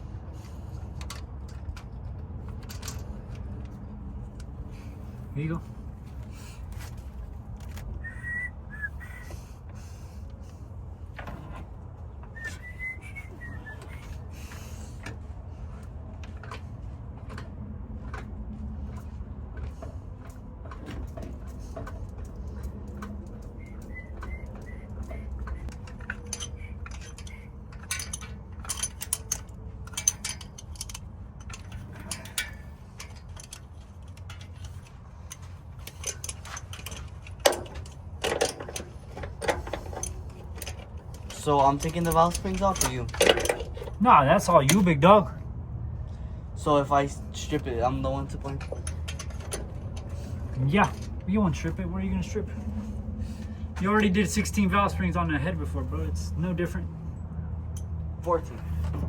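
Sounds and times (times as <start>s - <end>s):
whistled chirps: 8.0s - 9.4s, 12.3s - 14.2s, 23.6s - 25.7s, 26.4s - 27.5s
metal tools clinking: 18.1s - 45.0s, 47.5s - 52.4s.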